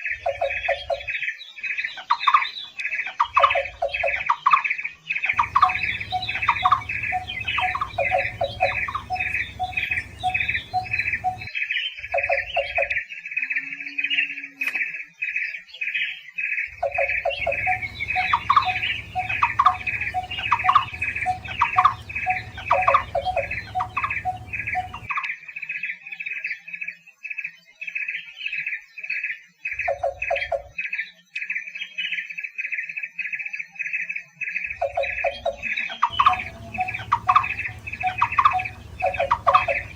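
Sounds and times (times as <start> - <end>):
barbets calling: 5.4 - 11.5, 16.8 - 25.1, 34.7 - 39.9
lower bird notes: 5.4 - 11.5, 16.9 - 25.1, 35.0 - 39.9.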